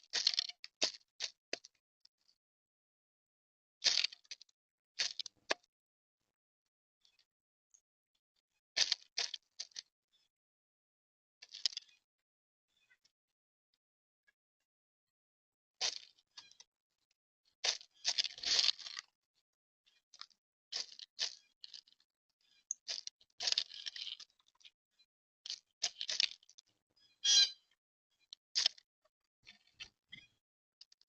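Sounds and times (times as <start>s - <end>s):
birds giving scratchy calls: 27.2s - 27.6s.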